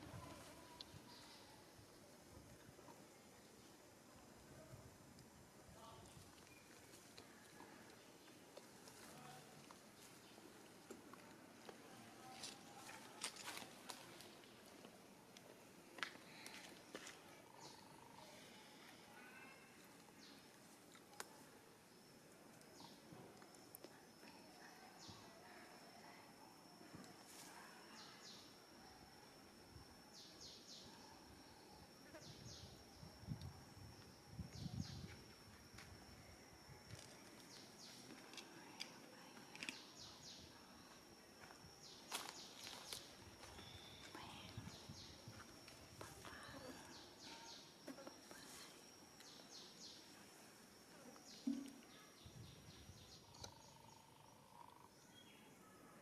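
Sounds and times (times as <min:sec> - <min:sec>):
high-pitched insect drone: 0:22.1 - 0:55.6.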